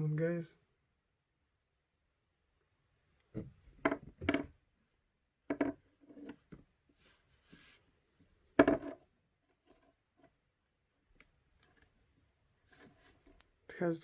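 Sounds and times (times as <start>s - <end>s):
tools knocking on workbench: 8.6s - 9.0s.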